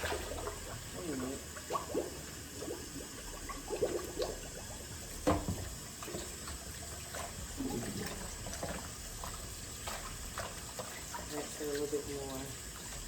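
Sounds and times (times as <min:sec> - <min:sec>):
water splashing: 0:00.0 - 0:13.0
tap running into sink: 0:05.1 - 0:06.6.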